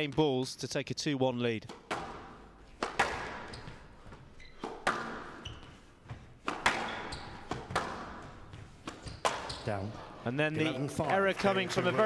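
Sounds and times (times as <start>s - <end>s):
squash ball knocking off rackets and walls: 1.7s - 9.6s.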